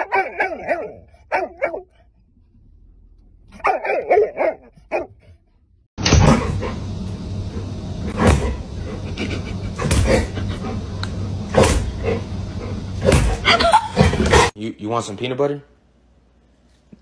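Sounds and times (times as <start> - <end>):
dog barking: 0.0 - 1.9, 3.6 - 5.2.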